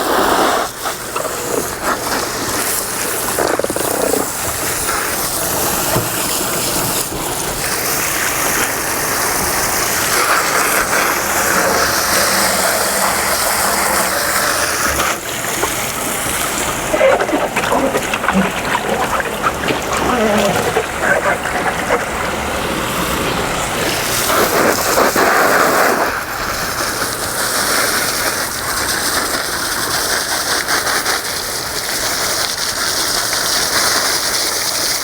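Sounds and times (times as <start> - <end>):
water spraying onto boat: 0.0 - 35.0.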